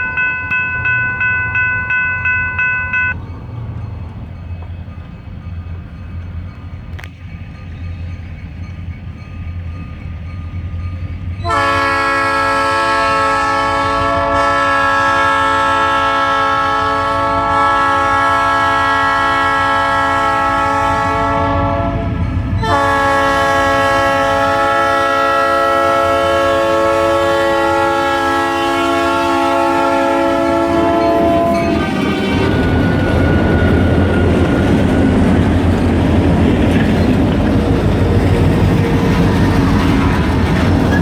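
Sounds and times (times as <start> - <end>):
train rumble: 0.0 - 41.0
locomotive air horn: 11.4 - 34.9.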